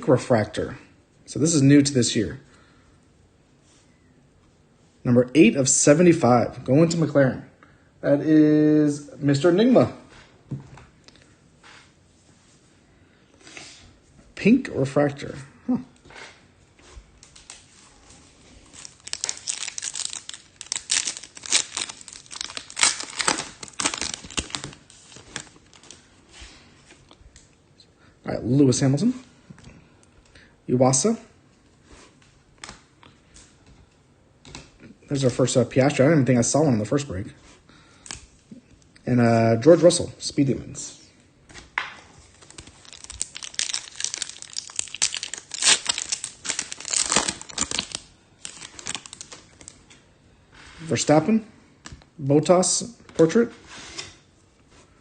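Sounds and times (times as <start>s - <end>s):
foil wrapper tearing and crinkling: 18.6s - 26.0s, 42.3s - 49.8s.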